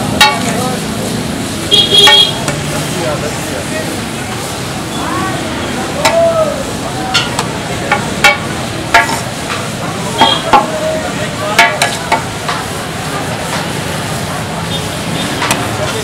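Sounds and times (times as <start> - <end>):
chicken sizzling on griddle: 0.0 - 16.0
metal spatula scraping and clanking: 0.1 - 0.7, 7.2 - 9.6, 11.6 - 12.7.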